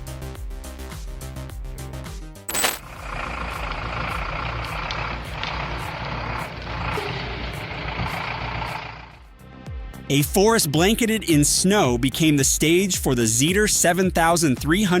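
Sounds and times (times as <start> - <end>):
heavy vehicle engine running: 2.9 - 9.2.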